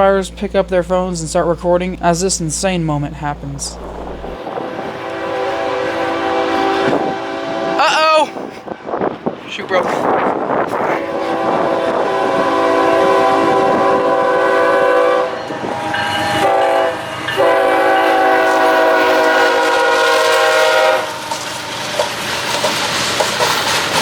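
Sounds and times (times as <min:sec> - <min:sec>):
locomotive horn blasts: 0:03.3 - 0:09.4, 0:10.8 - 0:21.5
train wheels clattering: 0:15.4 - 0:24.0.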